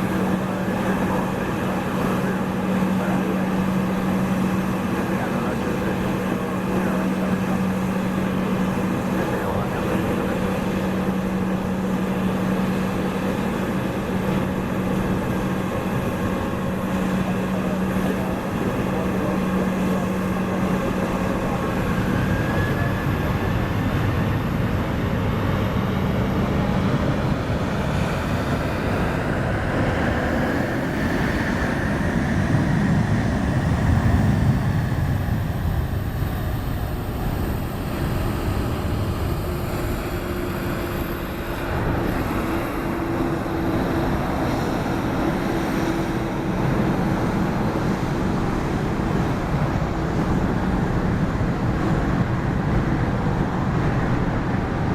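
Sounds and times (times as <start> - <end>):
jet engines running: 0.0 - 54.9.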